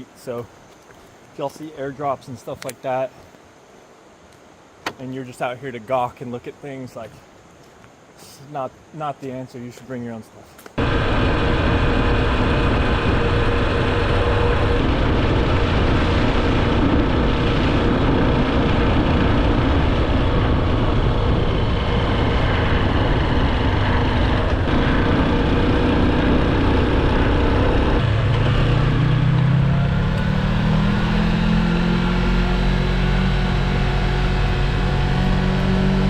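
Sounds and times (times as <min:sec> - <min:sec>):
loud engine running: 0:10.8 - 0:36.0
rising pitched tone: 0:10.8 - 0:36.0.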